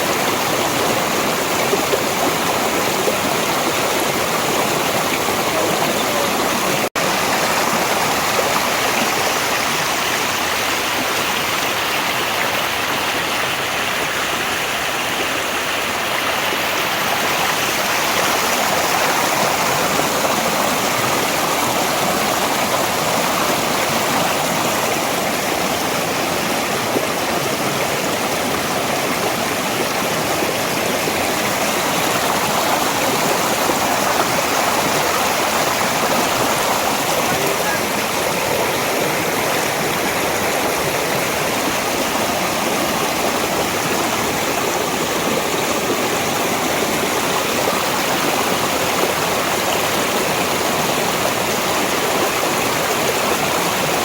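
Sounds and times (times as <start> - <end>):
water rushing over rocks: 0.0 - 54.0.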